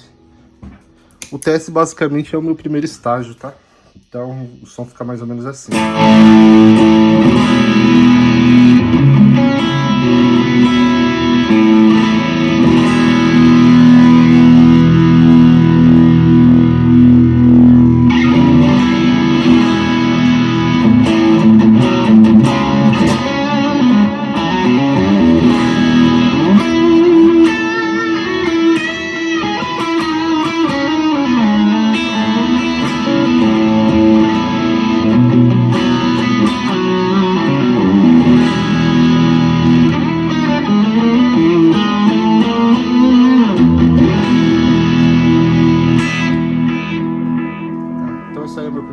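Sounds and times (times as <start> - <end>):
overdriven electric guitar: 0.0 - 1.4, 5.7 - 48.9.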